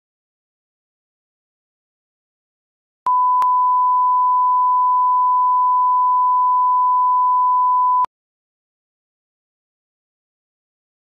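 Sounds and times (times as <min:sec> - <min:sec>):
steady test tone beep: 0:03.1 - 0:08.1.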